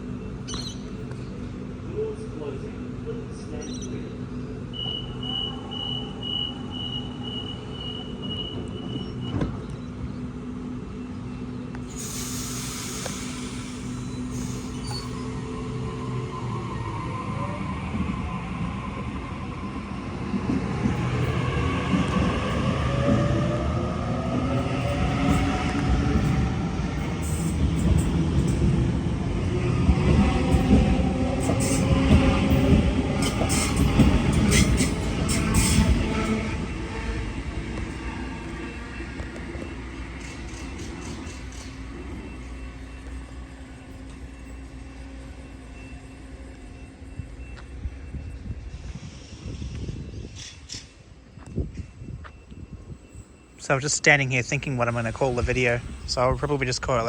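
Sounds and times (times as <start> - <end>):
train motor hum: 0.0 - 57.0
train wheels rumbling on track: 0.0 - 57.0
air hissing: 11.9 - 15.1.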